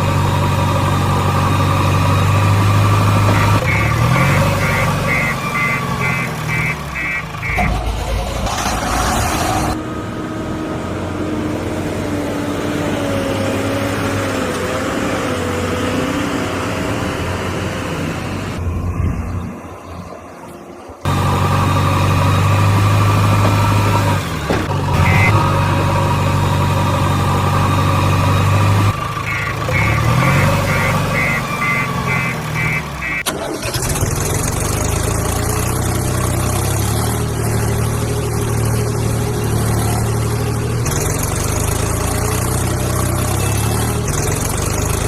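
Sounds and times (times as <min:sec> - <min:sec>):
vehicle engines running: 0:00.0 - 0:45.0
short beeps: 0:25.0 - 0:25.4.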